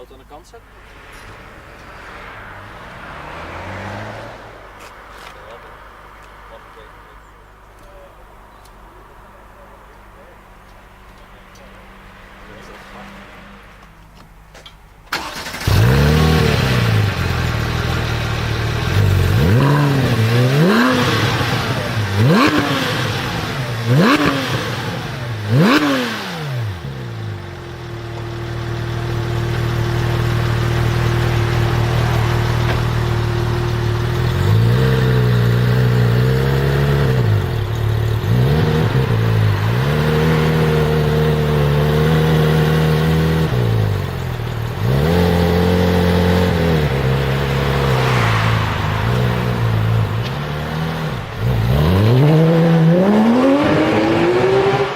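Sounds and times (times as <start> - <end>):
sports car engine revving: 0.5 - 14.5, 15.1 - 54.9.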